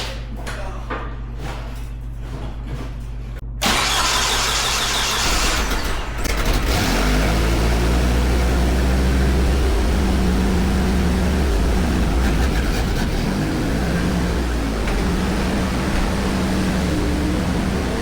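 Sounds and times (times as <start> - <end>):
truck engine idling: 3.6 - 18.0.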